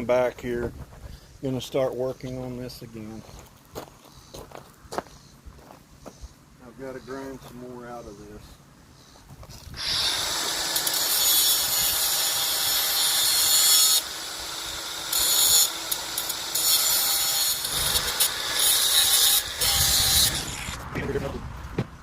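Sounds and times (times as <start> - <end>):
power grinder grinding metal: 9.8 - 20.8.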